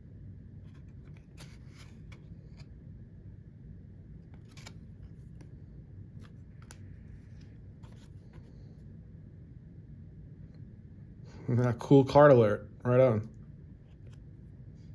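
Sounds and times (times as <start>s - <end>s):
steady low hum: 0.0s - 14.9s
cards scraping and clicking: 0.6s - 2.8s, 4.2s - 5.6s, 6.2s - 8.7s.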